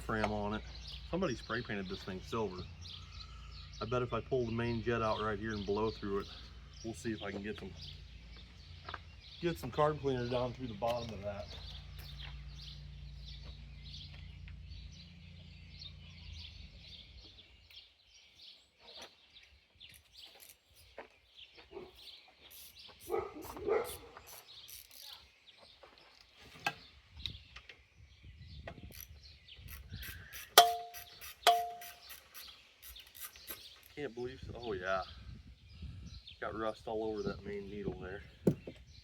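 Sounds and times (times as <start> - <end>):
birds chirping: 0.0 - 39.0
sharp ringing clinks: 30.6 - 32.1.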